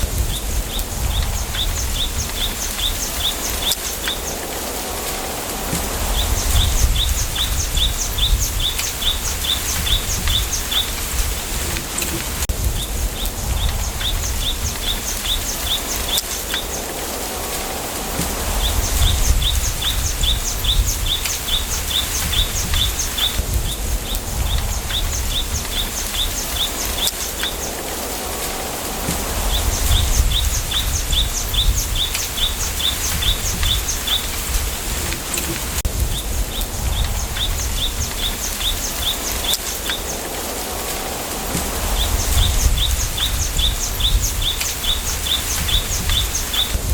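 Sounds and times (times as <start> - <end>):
low rumble gusts: 0.0 - 46.9
wind through bamboo: 0.0 - 46.9
small bird chirping: 18.3 - 27.8.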